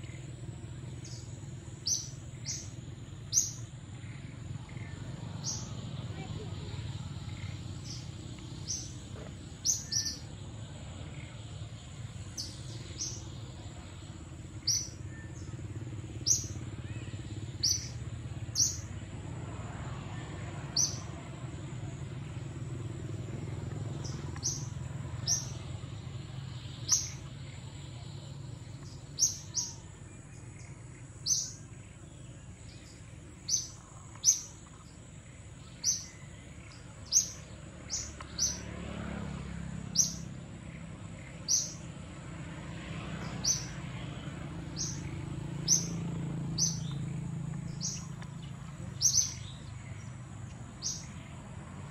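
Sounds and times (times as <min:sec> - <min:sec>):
bird chirping: 0:00.0 - 0:19.1, 0:20.7 - 0:38.7, 0:39.8 - 0:42.2, 0:43.1 - 0:51.5.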